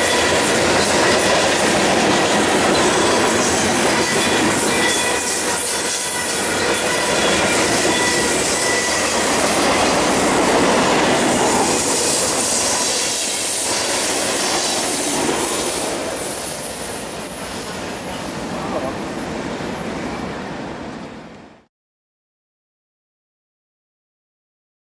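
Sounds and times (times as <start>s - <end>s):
wheel squeal: 0.0s - 19.9s
freight train wheels clacking: 0.0s - 21.4s.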